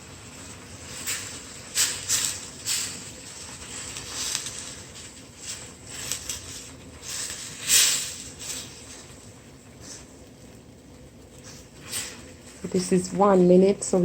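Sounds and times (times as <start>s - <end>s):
sauce hissing and spitting in pan: 0.0s - 9.2s.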